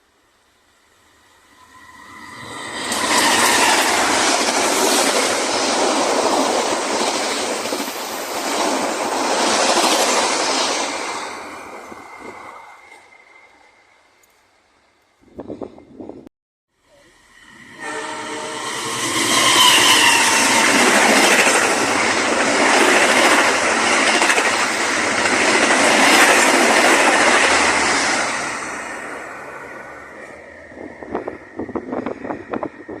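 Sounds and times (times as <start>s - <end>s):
rush of train wheels: 1.4s - 14.0s, 17.1s - 33.0s
train horn: 17.0s - 20.6s.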